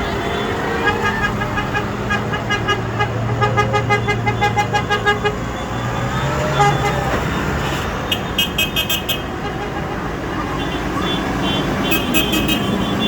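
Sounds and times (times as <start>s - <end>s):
tractor engines droning: 0.0s - 13.0s
vehicle horn short toots: 7.8s - 9.7s, 10.6s - 13.0s.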